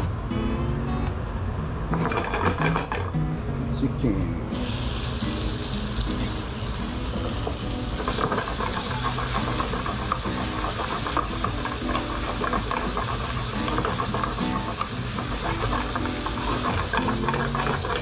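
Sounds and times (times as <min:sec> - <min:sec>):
chicken sizzling in frying pan: 0:04.5 - 0:18.0.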